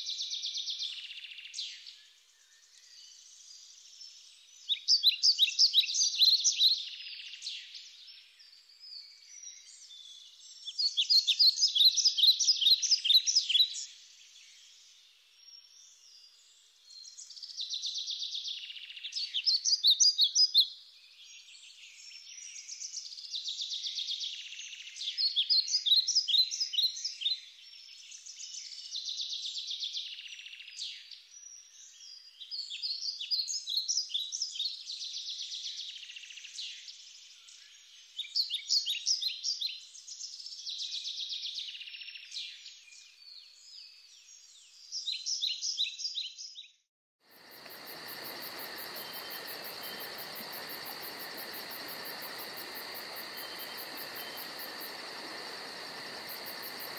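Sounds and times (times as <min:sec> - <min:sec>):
songbirds singing: 0:00.0 - 0:56.9
insect chirring: 0:47.3 - 0:56.9.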